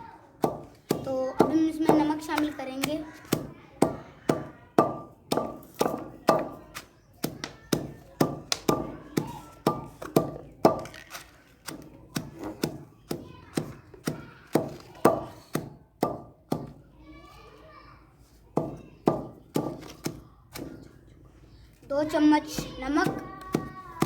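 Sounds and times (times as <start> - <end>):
pestle striking mortar: 0.4 - 16.8, 18.6 - 20.8, 22.5 - 24.0.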